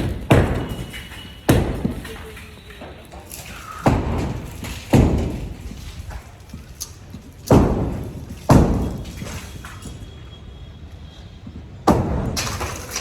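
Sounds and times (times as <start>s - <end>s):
heavy demolition thuds: 0.0s - 10.0s.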